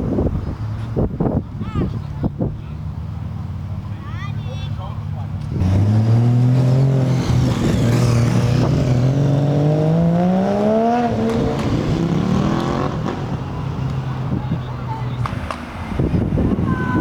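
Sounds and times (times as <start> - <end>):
car engine pulling away: 4.9 - 14.6.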